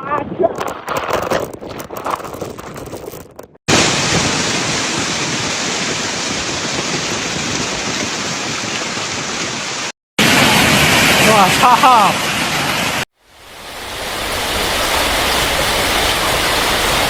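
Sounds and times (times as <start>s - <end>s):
gusty wind: 0.0s - 17.0s
heavy rain pouring: 3.7s - 17.0s.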